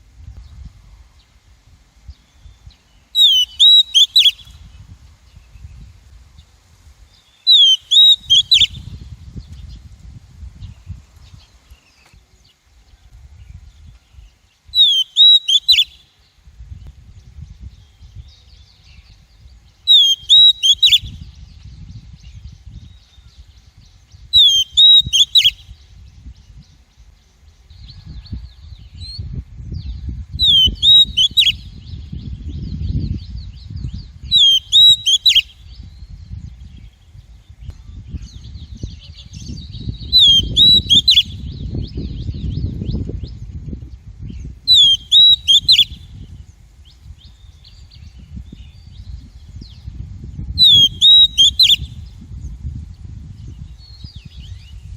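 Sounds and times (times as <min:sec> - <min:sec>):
bird whistled calls: 0:02.4 - 0:04.6, 0:07.3 - 0:08.9, 0:14.7 - 0:16.1, 0:19.8 - 0:21.5, 0:24.3 - 0:25.8, 0:30.4 - 0:32.0, 0:34.0 - 0:36.0, 0:38.2 - 0:42.5, 0:44.7 - 0:46.1, 0:50.6 - 0:52.1
bird chattering: 0:50.6 - 0:51.8.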